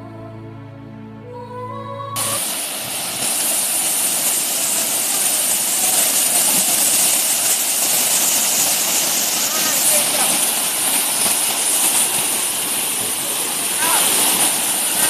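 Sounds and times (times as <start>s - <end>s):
background music: 0.0s - 2.5s
waterfall rushing: 2.2s - 15.0s.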